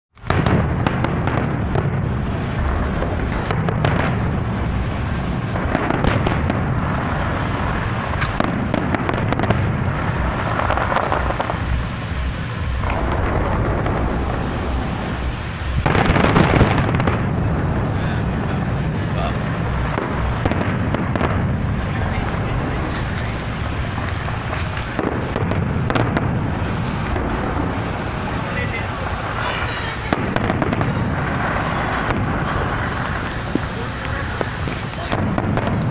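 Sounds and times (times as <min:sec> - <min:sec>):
fireworks bangs and crackling: 0:00.2 - 0:35.9.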